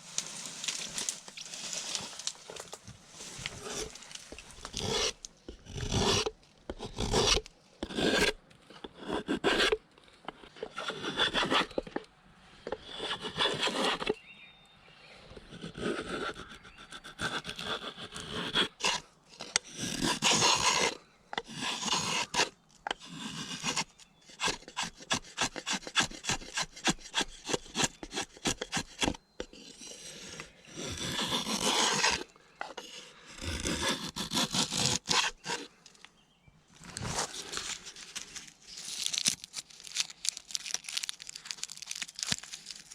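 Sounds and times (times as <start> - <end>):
hand saw rasping through wood: 4.6 - 8.3, 8.9 - 9.8, 10.6 - 11.9, 12.7 - 14.1, 15.5 - 35.7.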